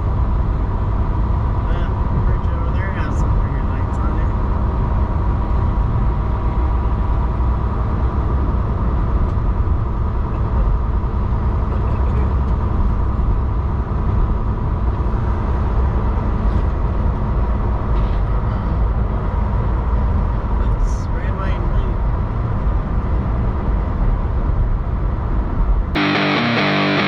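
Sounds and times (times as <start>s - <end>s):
truck engine drone: 26.0s - 27.0s.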